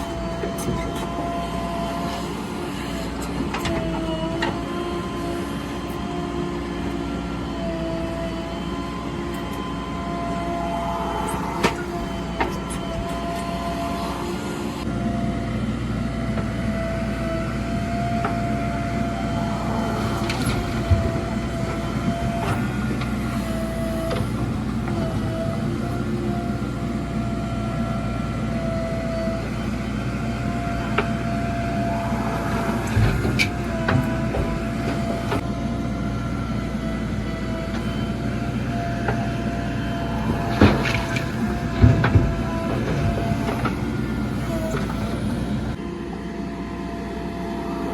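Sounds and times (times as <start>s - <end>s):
diesel engine running: 0.0s - 47.9s
high wavering whine: 8.3s - 14.9s.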